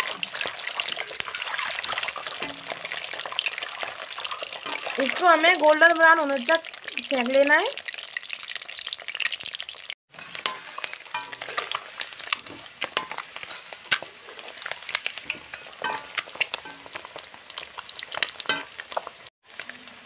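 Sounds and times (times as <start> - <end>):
eggs sizzling in hot oil: 0.0 - 20.0
ladle scraping and clinking on pan: 10.2 - 16.8.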